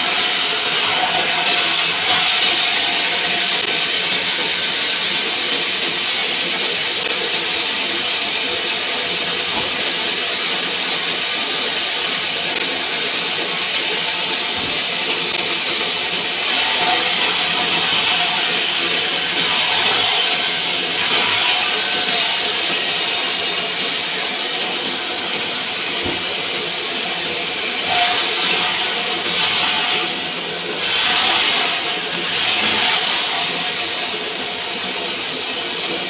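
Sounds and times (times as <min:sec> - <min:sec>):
saw ripping through log: 0:14.0 - 0:23.4, 0:27.8 - 0:34.2.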